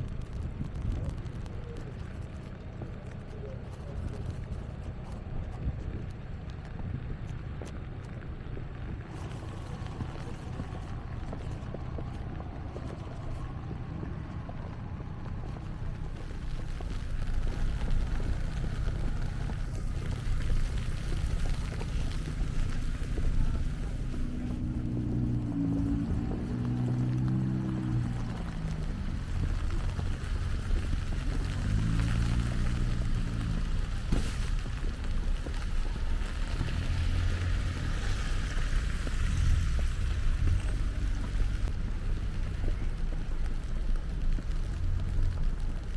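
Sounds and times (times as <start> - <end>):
faint crackles: 0.0 - 45.9
street traffic rumble: 0.0 - 45.9
vehicle engine: 0.0 - 45.9
wind buffeting microphone: 0.0 - 45.9
constant hiss: 15.2 - 45.9.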